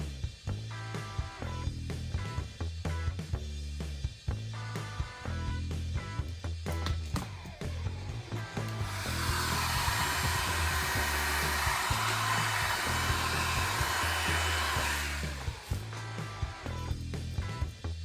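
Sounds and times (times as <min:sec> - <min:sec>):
background music: 0:04.4 - 0:17.7
hot-air blower hissing: 0:08.3 - 0:16.5.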